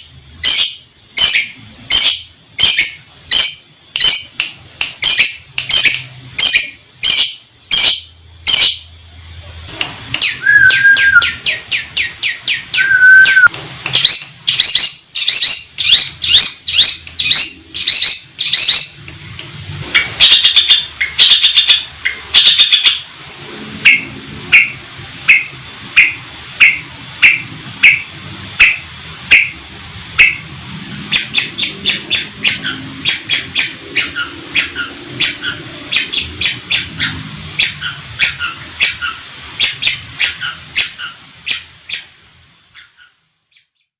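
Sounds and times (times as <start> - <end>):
shrike chattering song: 0.0 - 43.9
short whistles: 10.4 - 11.3, 12.8 - 13.5.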